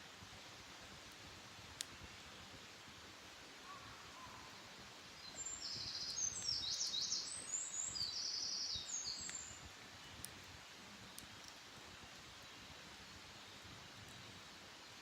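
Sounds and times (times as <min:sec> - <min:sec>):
faint outdoor background: 0:00.0 - 0:15.0
faint clicks: 0:01.8 - 0:02.0, 0:11.1 - 0:11.6
songbird singing trills: 0:03.7 - 0:10.3.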